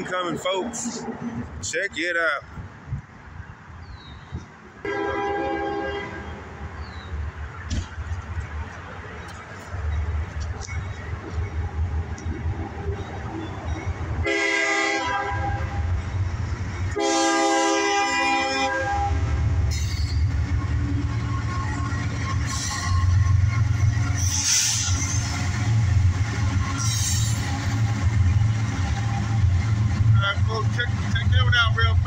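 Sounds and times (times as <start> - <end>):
locomotive engine rumbling: 0.0 - 32.0
rail car wheel noise: 0.0 - 32.0
locomotive air horn blasts: 4.8 - 6.4, 14.2 - 15.9, 16.9 - 19.5.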